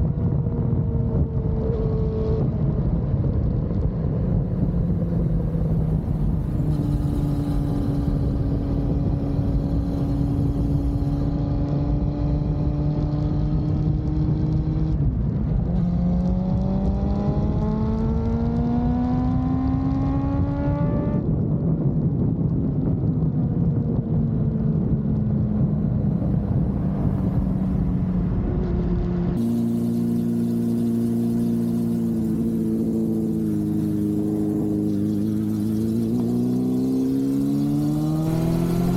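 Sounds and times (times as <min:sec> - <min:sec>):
motorcycle engine revving: 0:00.0 - 0:21.4, 0:24.9 - 0:38.9
low wind rush: 0:00.0 - 0:38.9.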